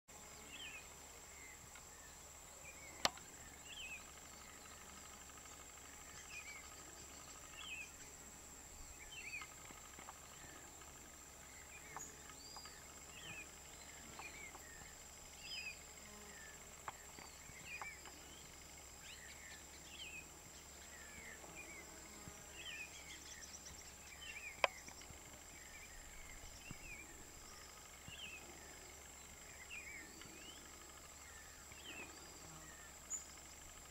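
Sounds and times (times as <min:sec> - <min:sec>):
birds calling: 0:00.6 - 0:33.9.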